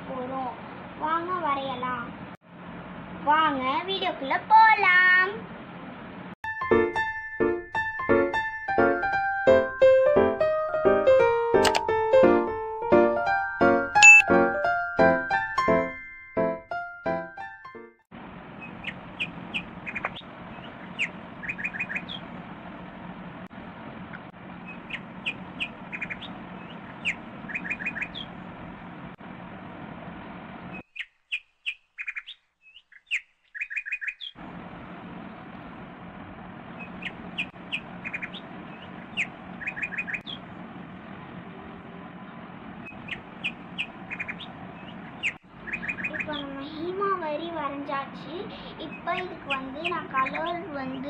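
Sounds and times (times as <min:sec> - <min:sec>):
steady low hum: 0:18.2 - 0:30.8, 0:34.4 - 0:51.0
small birds chirping: 0:18.5 - 0:22.4, 0:24.6 - 0:28.5, 0:30.7 - 0:34.4, 0:36.7 - 0:40.6, 0:42.2 - 0:47.0, 0:48.1 - 0:51.0.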